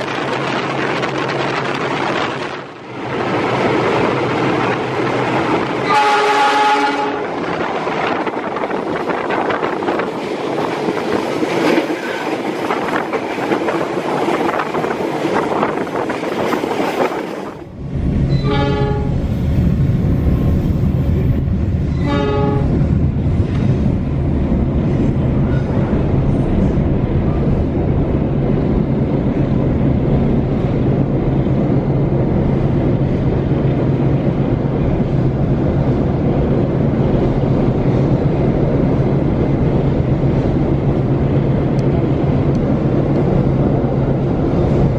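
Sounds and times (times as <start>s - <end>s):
train rumble with hum: 0.0s - 44.9s
wind and track noise: 0.0s - 44.9s
train horn blasts: 5.8s - 7.4s, 18.3s - 19.2s, 21.9s - 22.8s.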